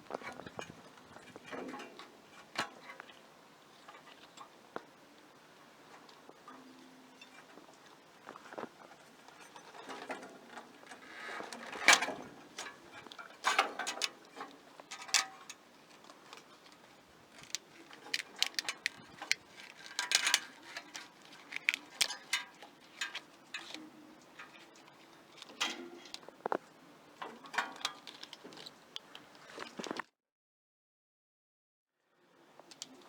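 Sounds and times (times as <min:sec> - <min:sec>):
rustling: 0:14.5 - 0:26.7.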